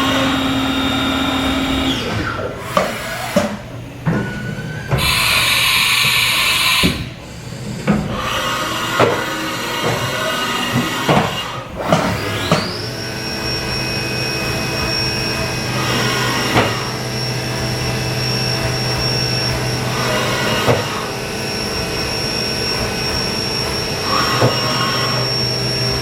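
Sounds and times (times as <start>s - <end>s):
machine hum: 0.0s - 26.0s
high-pitched spindle whine: 12.2s - 26.0s.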